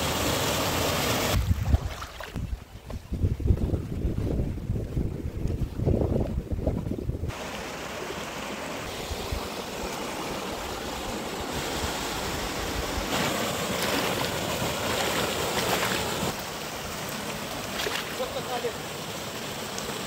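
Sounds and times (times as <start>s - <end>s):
water rushing over rocks: 0.0s - 2.5s, 7.3s - 20.0s.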